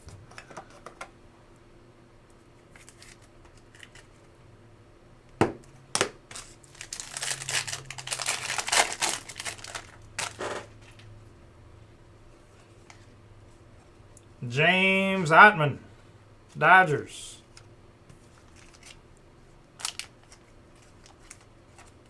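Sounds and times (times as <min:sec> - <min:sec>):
wrapper crinkling: 0:06.3 - 0:10.5, 0:19.8 - 0:21.4
card pack wrapper tearing: 0:06.8 - 0:10.4.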